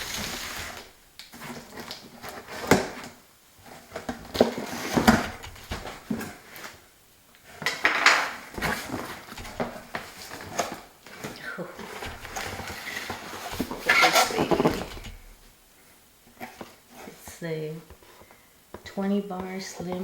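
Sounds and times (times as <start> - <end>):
cardboard rustling and scraping: 0.0 - 6.9, 7.5 - 15.5, 16.3 - 17.3.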